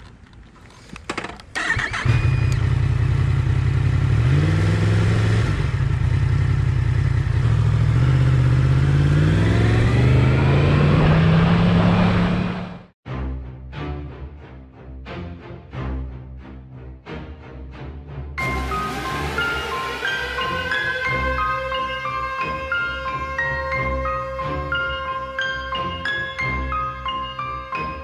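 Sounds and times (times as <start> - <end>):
motorcycle engine accelerating: 1.6 - 12.9, 18.4 - 22.4.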